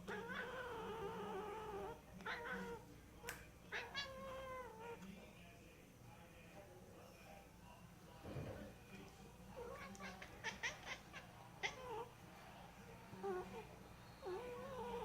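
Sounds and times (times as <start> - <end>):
cat meowing: 0.1 - 2.8, 3.7 - 5.0, 9.6 - 12.1.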